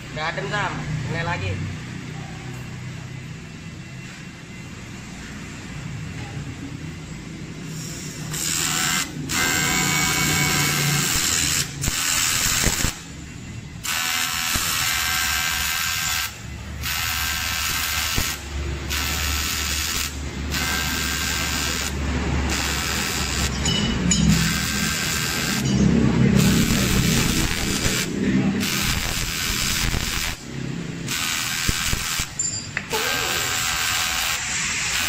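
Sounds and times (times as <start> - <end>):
electric welding arc buzzing: 7.7 - 13.2, 13.8 - 23.7, 24.3 - 35.0.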